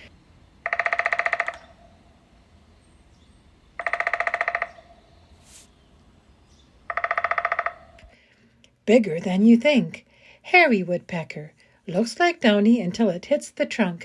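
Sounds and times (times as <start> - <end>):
woodpecker drumming on wood: 0.0 - 5.4, 6.7 - 8.1.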